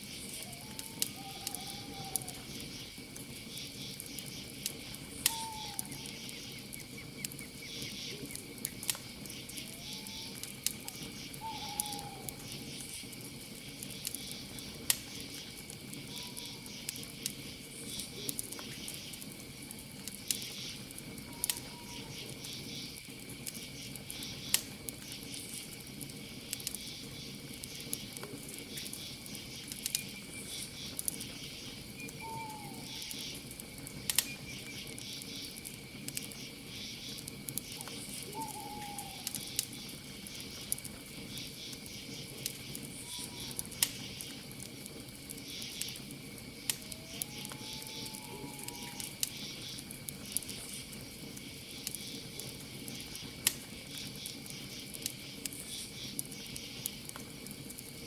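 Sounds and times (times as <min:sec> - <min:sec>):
campfire crackling: 0:00.0 - 0:58.0
insect trill: 0:00.0 - 0:58.0
night animal call: 0:00.1 - 0:08.5, 0:09.2 - 0:13.0, 0:14.1 - 0:17.2, 0:20.5 - 0:22.9, 0:28.9 - 0:33.5, 0:36.3 - 0:40.8, 0:41.4 - 0:44.4, 0:45.4 - 0:50.7.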